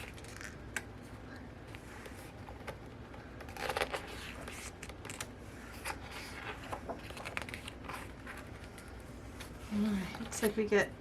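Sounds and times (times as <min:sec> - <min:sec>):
book pages turning: 0:01.6 - 0:10.6.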